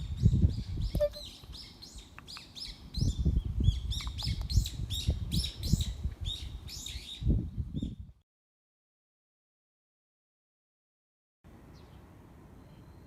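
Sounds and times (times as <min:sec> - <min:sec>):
small bird chirping: 0:00.0 - 0:08.0.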